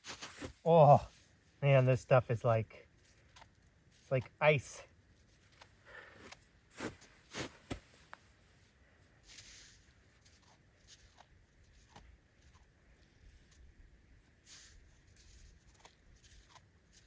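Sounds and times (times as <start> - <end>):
footsteps crunching icy snow: 0.0 - 2.0, 6.0 - 10.2
scrapes on snow: 0.0 - 2.0, 6.7 - 10.2.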